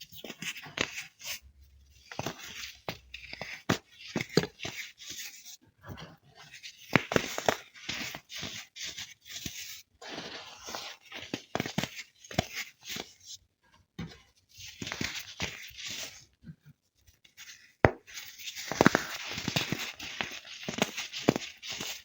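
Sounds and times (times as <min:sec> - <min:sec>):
baking soda crunching: 0:10.0 - 0:11.1.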